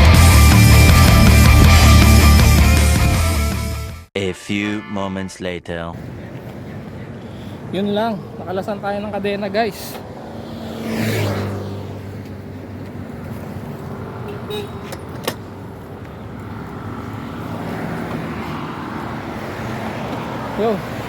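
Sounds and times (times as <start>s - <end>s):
road traffic noise: 0.0s - 3.9s, 5.9s - 21.0s
vehicle passing by: 6.0s - 21.0s.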